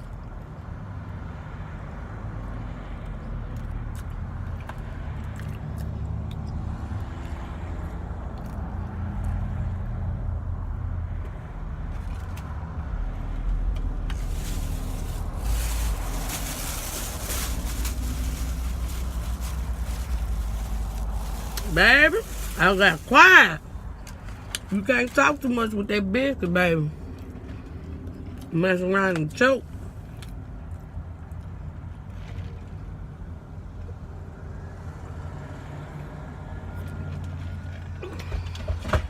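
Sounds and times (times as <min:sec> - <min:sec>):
vehicle engine idling: 0:10.4 - 0:26.2.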